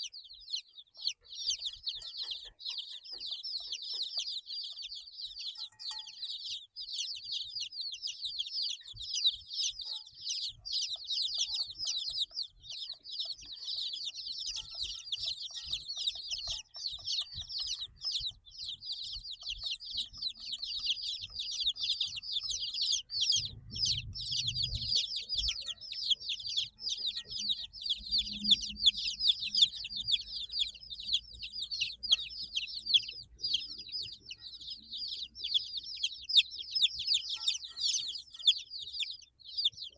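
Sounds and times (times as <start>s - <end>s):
baby chicks peeping: 0.0s - 39.9s
low rumble: 23.2s - 25.5s.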